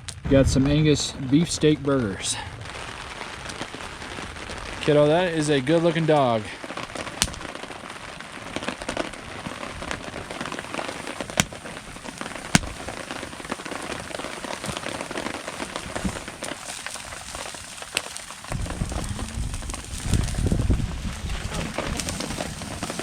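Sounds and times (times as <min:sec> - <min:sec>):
rain on a canopy: 0:00.0 - 0:23.0
loud low sound: 0:00.2 - 0:02.6, 0:18.5 - 0:22.2.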